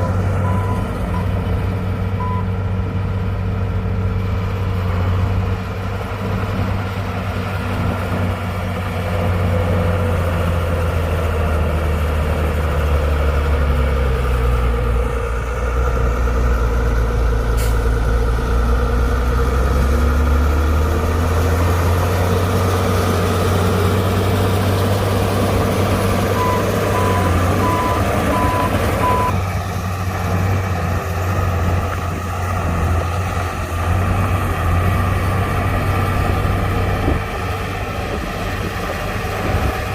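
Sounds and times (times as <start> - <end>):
heavy diesel engines working: 0.0 - 39.9
reversing alarm beeps: 26.4 - 29.4.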